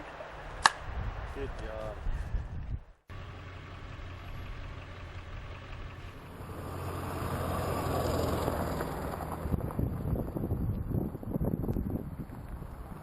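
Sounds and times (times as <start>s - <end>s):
vehicle engine hum: 3.1s - 13.0s.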